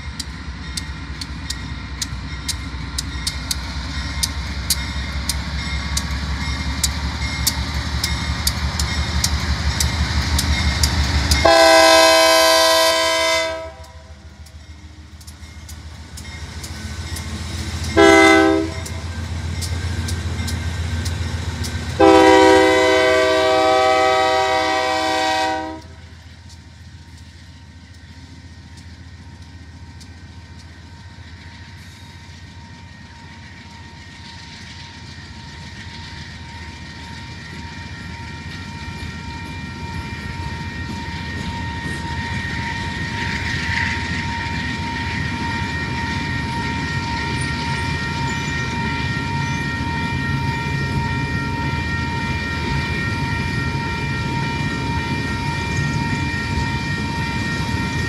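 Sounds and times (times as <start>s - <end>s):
train cars rumbling past: 0.0s - 58.0s
locomotive horn: 11.4s - 14.2s, 18.0s - 19.0s, 22.0s - 26.0s, 44.2s - 58.0s
high ringing tone: 31.1s - 58.0s.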